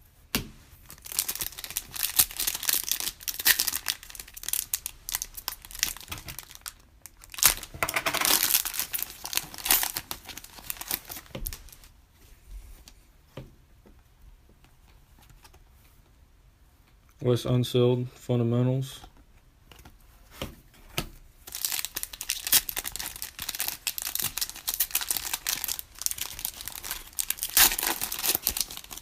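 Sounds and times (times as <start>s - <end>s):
foil wrapper tearing and crinkling: 0.9s - 11.9s, 21.4s - 29.0s.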